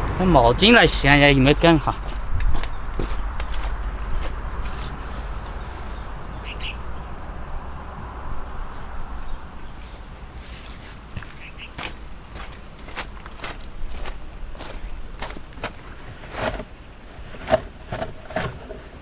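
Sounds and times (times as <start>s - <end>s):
low rumble: 0.0s - 9.8s
insects chorus: 0.0s - 19.0s.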